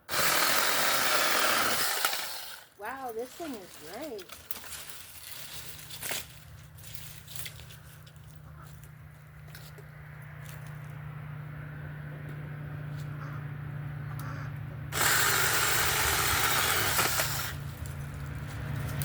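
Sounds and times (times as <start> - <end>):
mini chainsaw running: 0.0 - 2.7, 14.9 - 18.0
chainsaw cutting branch: 0.0 - 7.5, 14.9 - 19.0.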